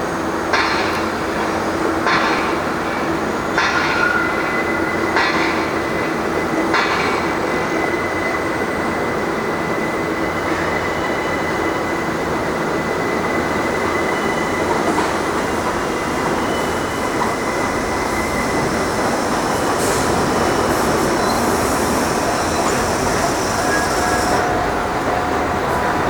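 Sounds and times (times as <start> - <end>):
train wheels rumbling on rail: 0.0 - 26.0
high-pitched wheel squeal: 16.0 - 24.5.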